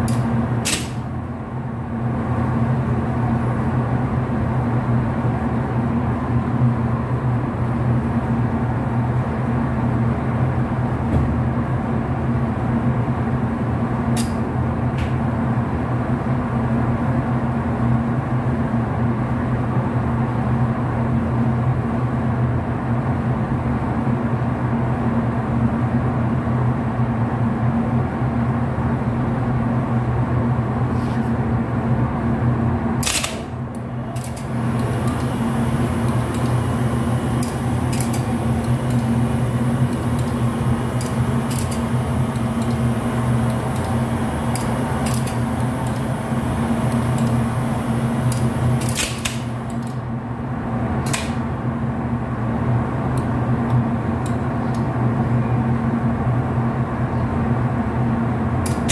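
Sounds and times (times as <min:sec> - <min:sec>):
steady low hum: 0:00.0 - 0:58.9.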